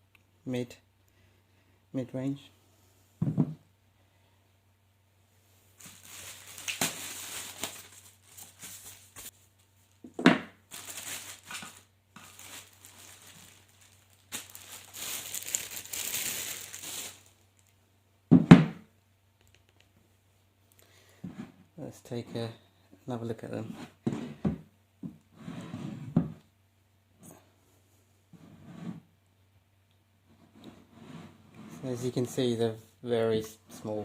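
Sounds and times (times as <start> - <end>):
packaging crinkling and rustling: 5.8 - 17.8.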